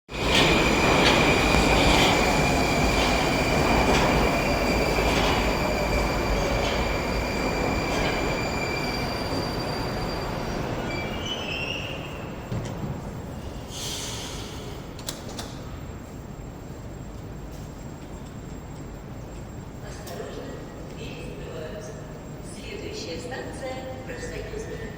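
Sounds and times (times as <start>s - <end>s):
metro train slowing down: 0.1s - 24.9s
rail clicks: 0.2s - 8.4s.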